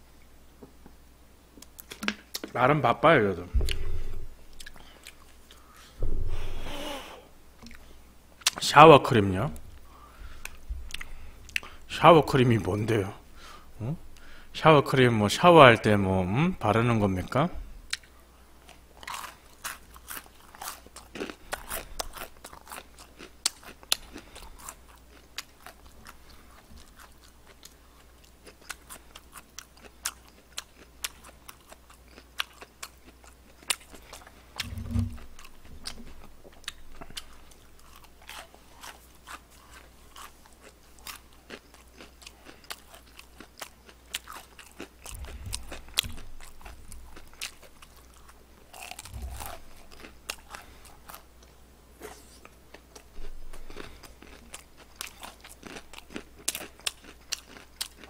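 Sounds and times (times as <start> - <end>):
crunching fried chicken: 18.7 - 51.6, 52.2 - 58.0.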